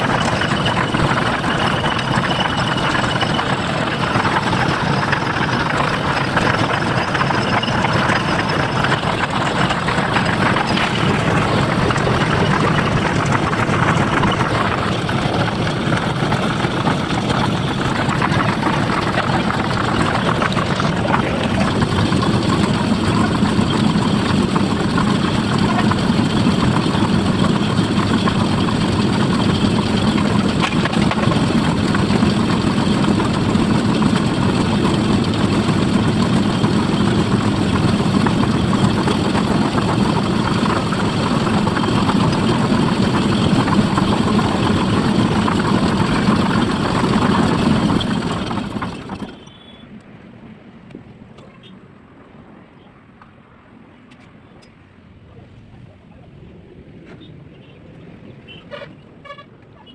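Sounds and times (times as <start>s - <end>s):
engine idling steadily: 0.0s - 50.0s.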